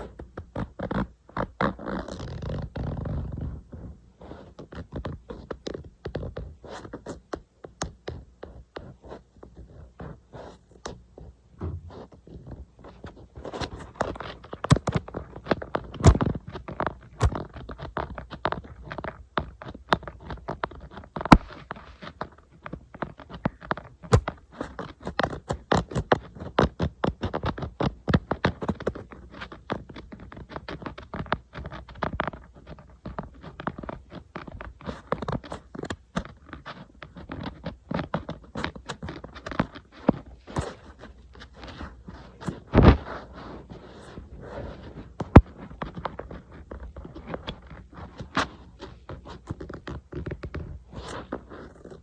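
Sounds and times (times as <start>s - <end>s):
fingernails tapping on glass screen: 14.7s - 15.0s.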